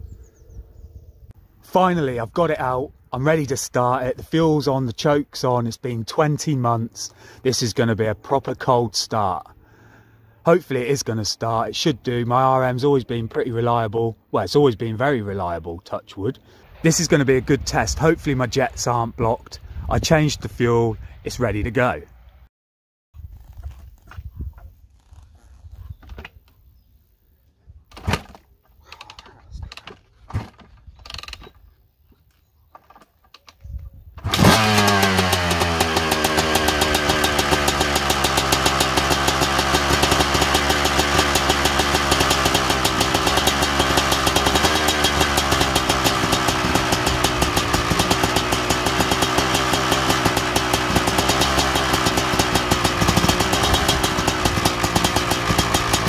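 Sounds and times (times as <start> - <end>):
two-stroke engine idling: 34.2 - 56.0.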